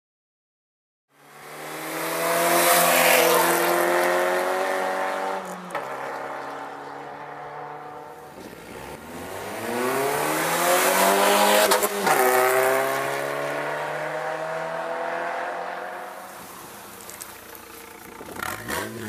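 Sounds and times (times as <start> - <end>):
car engine revving: 1.4 - 19.0
exhaust crackle: 16.2 - 19.0.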